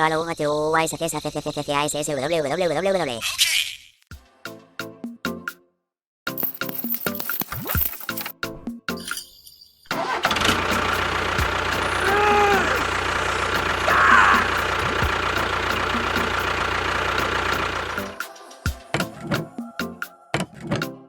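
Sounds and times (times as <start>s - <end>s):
small engine idling: 10.0s - 18.2s.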